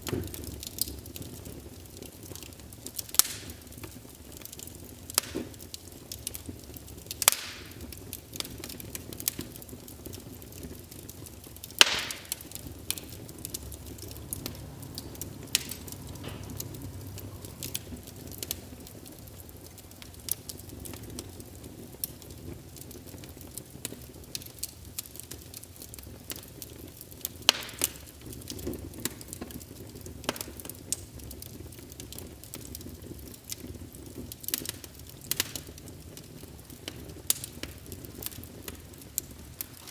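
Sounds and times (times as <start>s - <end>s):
wood fire crackling: 0.0s - 39.9s
low steady rumble: 12.4s - 22.0s.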